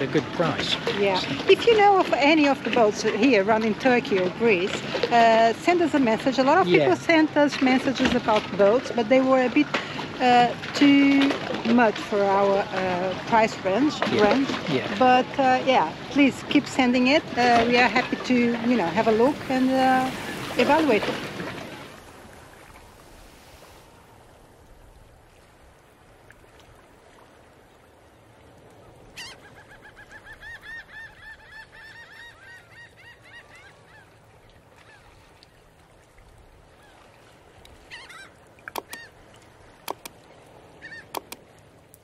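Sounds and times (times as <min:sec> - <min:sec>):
bird calling rapidly: 0:29.2 - 0:34.1, 0:37.8 - 0:39.2, 0:40.8 - 0:41.4
sharp clicks: 0:38.7 - 0:39.0, 0:39.9 - 0:40.2, 0:41.1 - 0:41.4.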